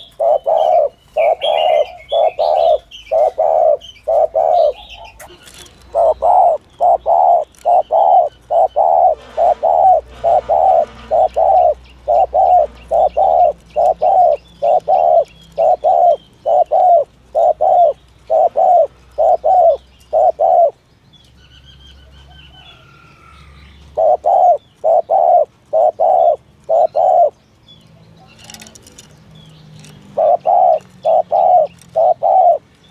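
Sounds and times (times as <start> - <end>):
dove cooing: 0.0 - 20.8, 22.3 - 27.4, 29.8 - 32.9
faint small birds chirping: 0.0 - 32.9.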